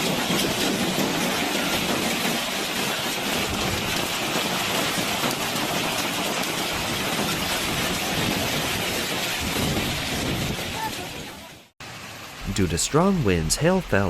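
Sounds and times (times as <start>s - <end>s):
heavy rain pouring: 0.2s - 11.2s.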